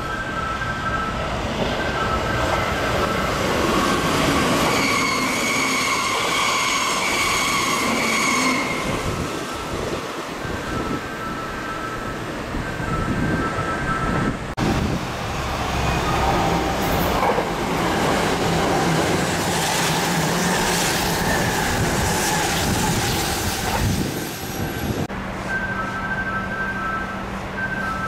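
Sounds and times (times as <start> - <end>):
train rushing past: 0.0 - 28.0
wheel squeal: 4.2 - 9.9, 24.6 - 28.0.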